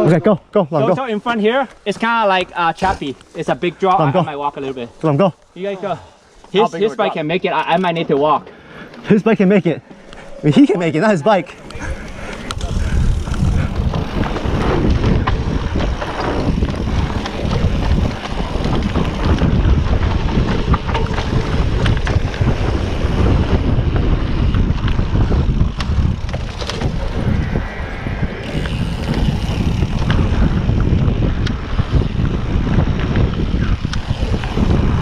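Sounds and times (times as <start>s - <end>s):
bike clicks and rattles: 1.2s - 9.2s, 11.2s - 35.0s
wind buffeting microphone: 11.5s - 35.0s.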